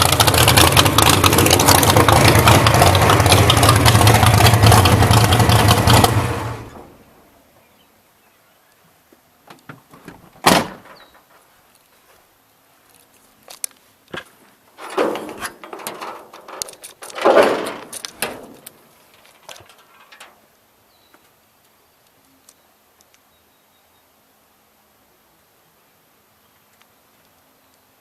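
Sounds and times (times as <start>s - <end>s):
rubbing and clattering: 14.2s - 20.4s.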